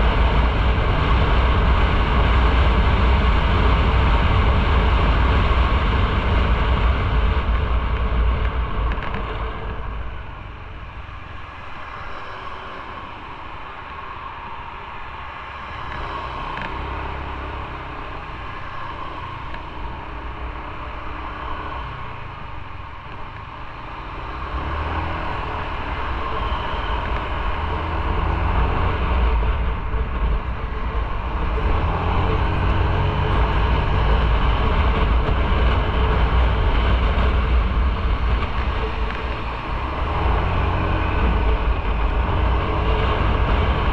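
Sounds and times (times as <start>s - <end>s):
motorcycle engine rumble: 0.0s - 43.9s
road noise: 0.0s - 43.9s
wind: 0.0s - 43.9s.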